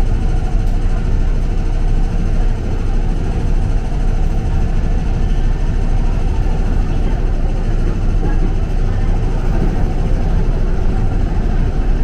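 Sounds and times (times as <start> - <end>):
train rumbling inside carriage: 0.0 - 12.0.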